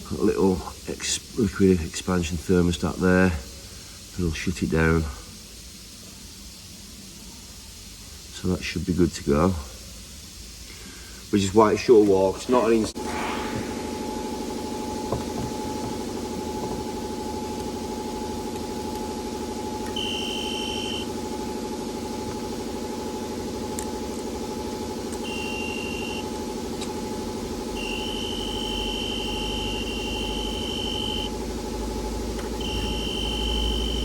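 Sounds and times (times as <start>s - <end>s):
steady electrical hum: 0.0s - 34.0s
high electronic beeps: 19.9s - 21.1s, 25.2s - 26.2s, 27.8s - 31.3s, 32.6s - 34.0s.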